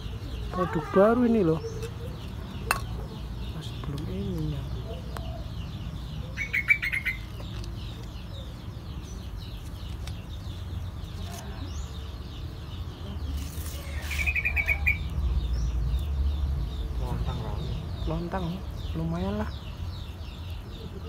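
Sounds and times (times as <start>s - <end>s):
faint bird chirping: 0.0s - 21.0s
small bird trilling: 13.2s - 15.1s.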